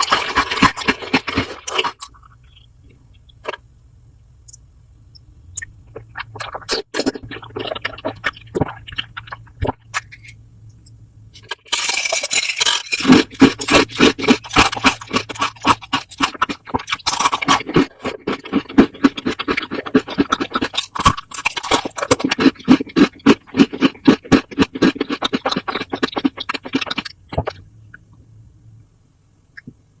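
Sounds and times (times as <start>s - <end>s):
crackly scraping and crunching: 0.0s - 3.6s, 11.3s - 27.7s.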